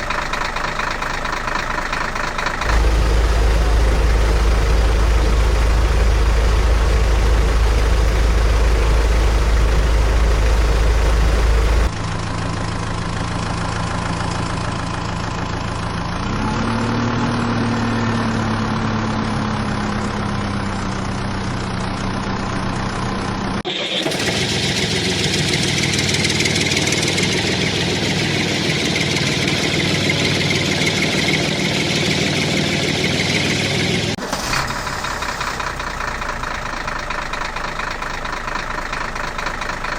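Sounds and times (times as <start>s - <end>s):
construction machinery engines: 0.0s - 39.9s
engine revving: 2.0s - 11.9s, 16.1s - 38.0s.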